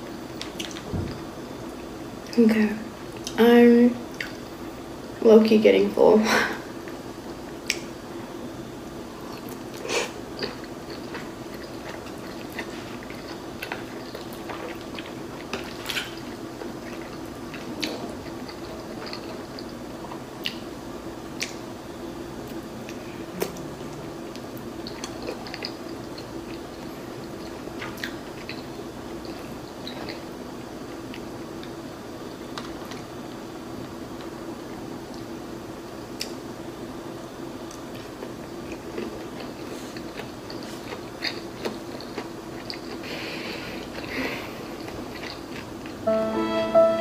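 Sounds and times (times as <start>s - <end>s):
person chewing wet food: 9.2s - 20.7s, 24.3s - 31.8s, 37.7s - 43.1s, 43.7s - 46.0s.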